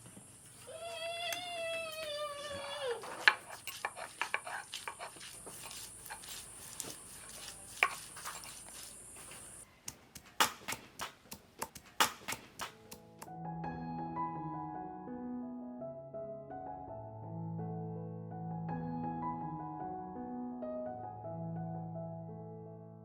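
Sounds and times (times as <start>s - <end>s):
cat meowing: 0.7s - 3.2s
cooking utensils and pots clinking: 3.0s - 6.4s
steady high hiss: 5.3s - 9.6s
soft piano music: 12.7s - 23.0s.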